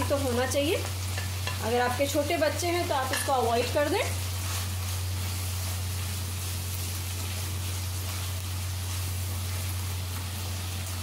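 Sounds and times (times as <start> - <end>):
food sizzling in a wok: 0.0 - 11.0
spatula stirring: 3.0 - 10.3.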